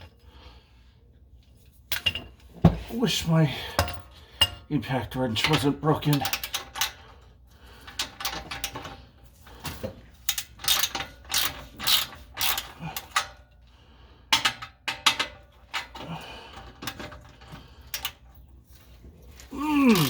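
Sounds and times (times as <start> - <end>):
ratchet wrench clicking: 10.3 - 13.2.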